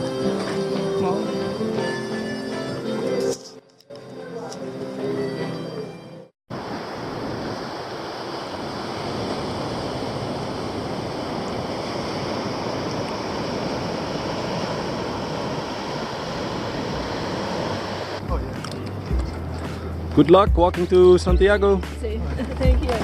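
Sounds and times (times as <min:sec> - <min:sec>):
steady outdoor rushing noise: 0:06.5 - 0:21.3.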